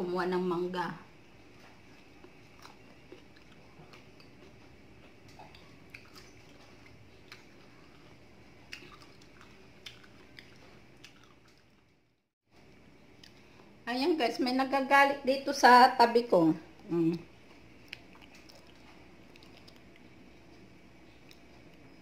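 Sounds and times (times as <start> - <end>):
quiet chewing: 1.4 - 13.7, 16.8 - 21.9.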